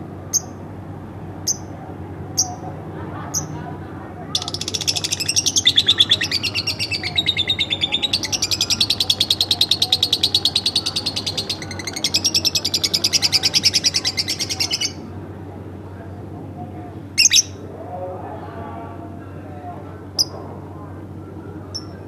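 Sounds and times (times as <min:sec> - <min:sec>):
lovebird chirping: 0:00.3 - 0:00.6, 0:04.4 - 0:15.0, 0:17.2 - 0:17.6.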